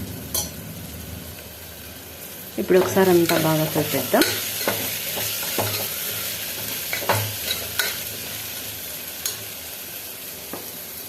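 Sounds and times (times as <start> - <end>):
food sizzling in a pressure cooker: 0.0 - 11.0
spatula scraping and knocking pan: 2.8 - 8.4.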